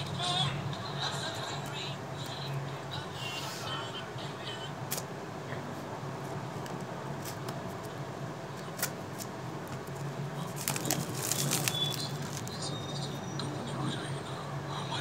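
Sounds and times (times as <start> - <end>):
low steady hum: 0.0 - 15.0
packaging crinkling and clicking: 8.6 - 12.6.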